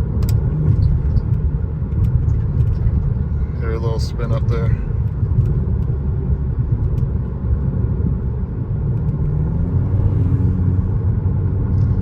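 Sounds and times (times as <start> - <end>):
car engine drone from inside: 0.0 - 12.0.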